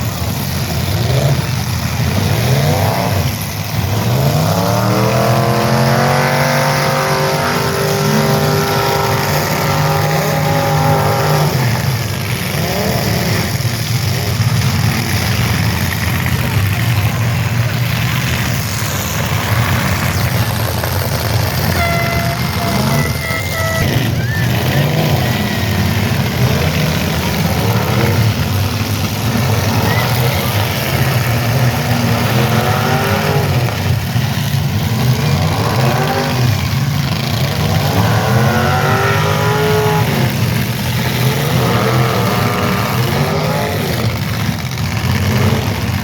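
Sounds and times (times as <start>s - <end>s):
car engines revving: 0.0s - 46.0s
short steady tone: 21.8s - 24.1s.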